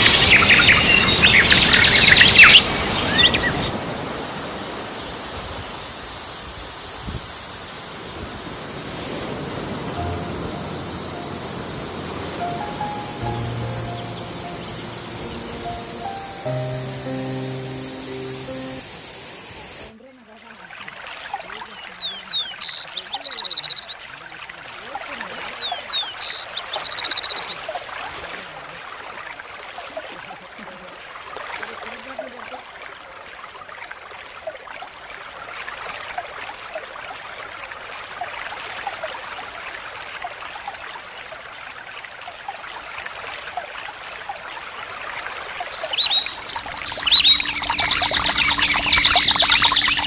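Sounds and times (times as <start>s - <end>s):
water trickling: 0.0s - 32.7s, 35.7s - 50.0s
rapidly pulsing high call: 9.8s - 19.8s, 45.7s - 50.0s.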